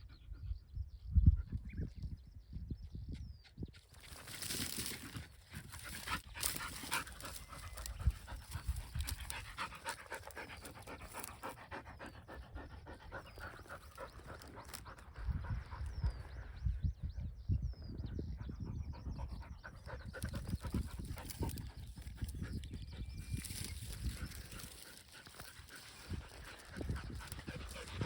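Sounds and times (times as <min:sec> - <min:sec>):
bird chirping: 0:00.1 - 0:28.0
dog panting: 0:05.6 - 0:15.9, 0:19.1 - 0:28.0.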